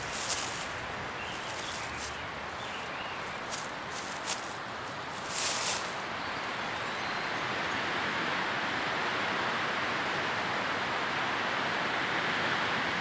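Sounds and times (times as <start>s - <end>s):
pink noise hiss: 0.0s - 6.8s.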